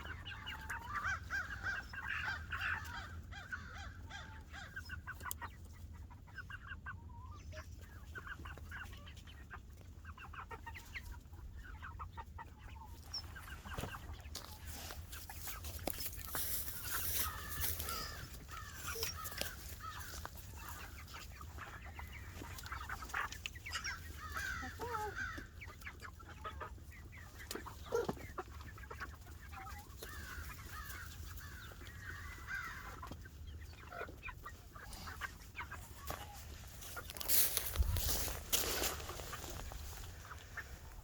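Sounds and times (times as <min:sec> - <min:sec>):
chickens calling: 0:00.0 - 0:41.0.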